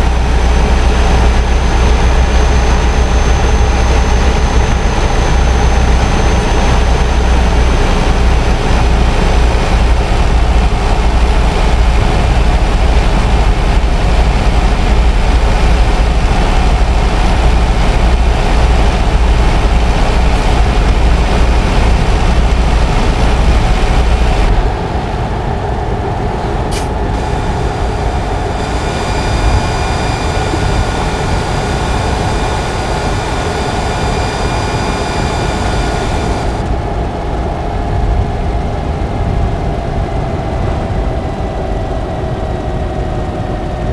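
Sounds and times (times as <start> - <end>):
diesel truck engine droning: 0.0 - 43.9
sharp click: 26.7 - 27.2.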